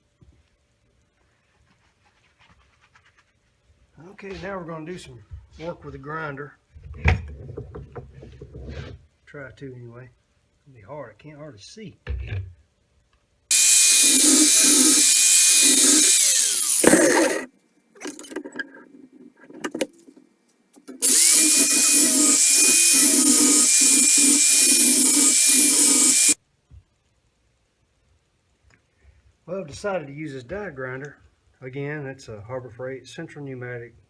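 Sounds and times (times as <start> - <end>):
grinder whining on metal: 13.5 - 17.5, 21.0 - 26.4.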